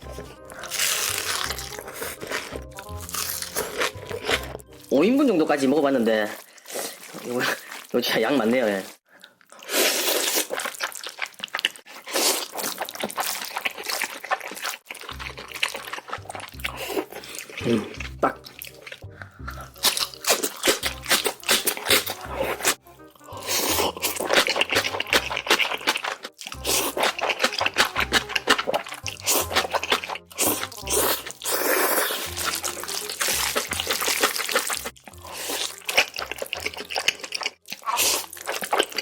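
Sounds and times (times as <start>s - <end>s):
background music with low bass: 0.0s - 6.0s, 15.0s - 38.7s
wet slurping and chewing: 0.0s - 8.1s, 9.2s - 39.0s.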